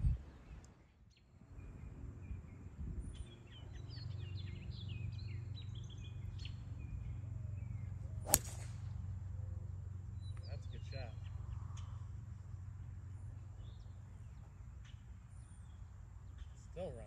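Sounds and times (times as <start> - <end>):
songbirds chirping: 0.0 - 17.0
low outdoor rumble: 1.4 - 17.0.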